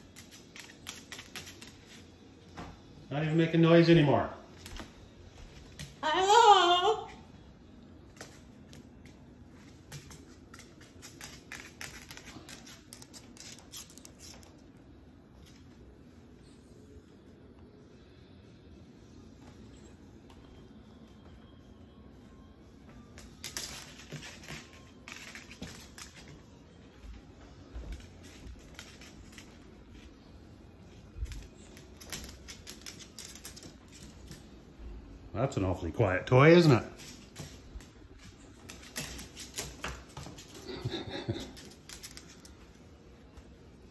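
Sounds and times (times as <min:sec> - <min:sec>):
bird beak clicking and scratching: 0:31.2 - 0:34.4.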